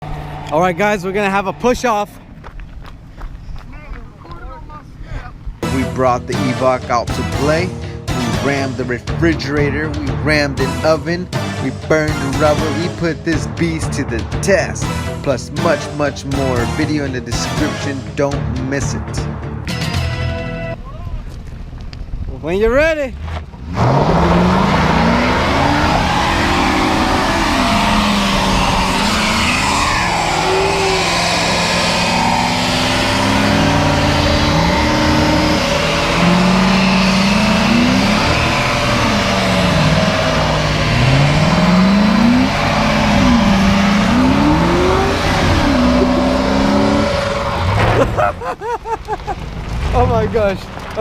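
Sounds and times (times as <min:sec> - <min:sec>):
tires spinning on pavement: 0:00.0 - 0:04.6, 0:21.3 - 0:51.0
car engines revving hard: 0:23.4 - 0:48.5.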